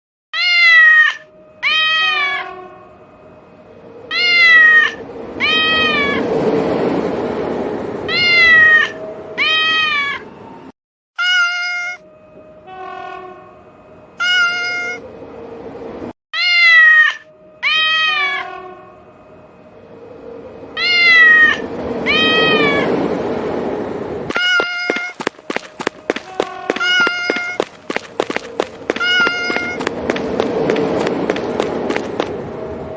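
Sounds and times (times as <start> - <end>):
train rumble: 20.8 - 32.9.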